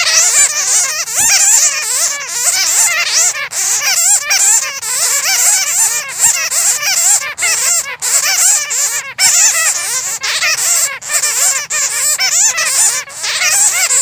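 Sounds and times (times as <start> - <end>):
bats squeaking and chattering: 0.0 - 14.0.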